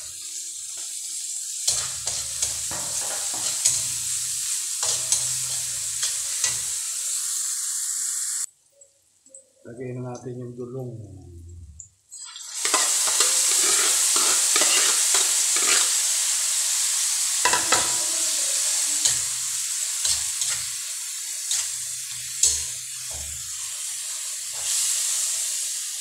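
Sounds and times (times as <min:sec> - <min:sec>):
fish sizzling in wok: 0:00.0 - 0:08.5, 0:12.1 - 0:26.0
metal spatula scraping wok: 0:01.7 - 0:06.8, 0:12.6 - 0:16.3, 0:17.4 - 0:20.8, 0:21.4 - 0:25.2.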